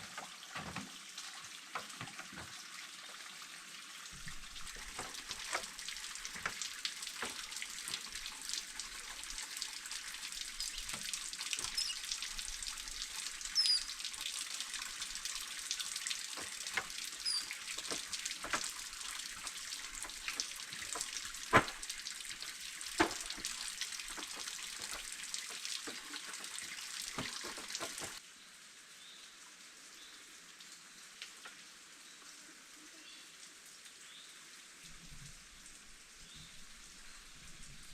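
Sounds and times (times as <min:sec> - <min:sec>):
water dripping: 0:00.0 - 0:28.2, 0:29.4 - 0:32.4
faint high chirps: 0:11.7 - 0:12.0, 0:13.6 - 0:14.0, 0:17.2 - 0:17.6.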